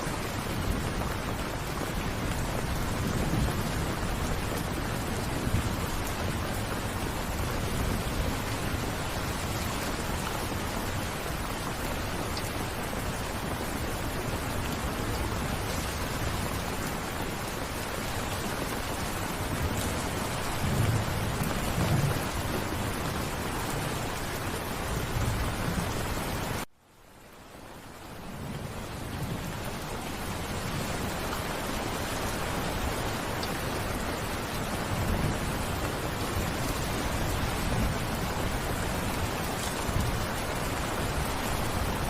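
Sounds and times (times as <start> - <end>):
steady rain: 0.0 - 42.0
thunder rumbling: 18.3 - 26.6.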